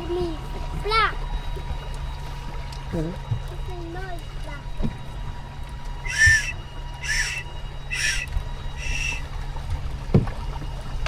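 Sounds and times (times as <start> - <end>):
toy whistle toots: 6.0 - 9.3.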